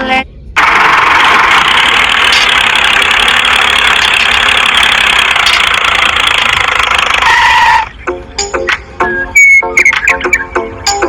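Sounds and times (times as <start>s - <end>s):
small motor buzzing: 0.6s - 7.8s.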